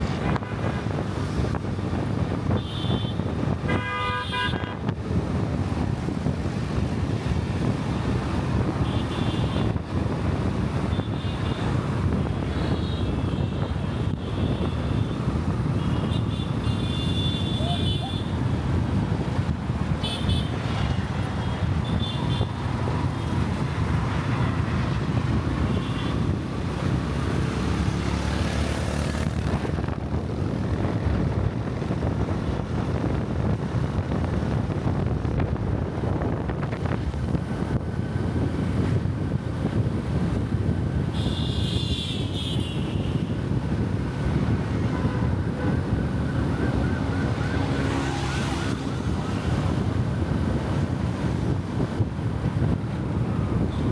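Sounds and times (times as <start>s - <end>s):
traffic engines rumbling: 0.0s - 53.9s
wind on microphone: 0.0s - 53.9s
vehicle horns: 2.5s - 4.9s, 8.8s - 9.8s, 12.4s - 18.4s, 20.0s - 22.6s, 25.6s - 26.3s, 41.1s - 43.4s, 44.8s - 46.0s.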